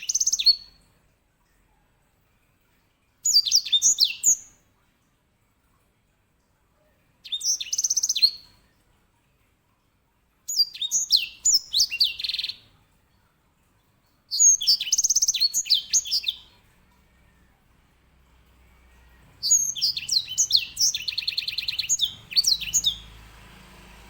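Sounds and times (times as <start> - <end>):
finch singing chirps and trills: 0.0 - 0.7, 3.2 - 4.5, 7.2 - 8.5, 10.5 - 12.6, 14.3 - 16.6, 19.2 - 23.3.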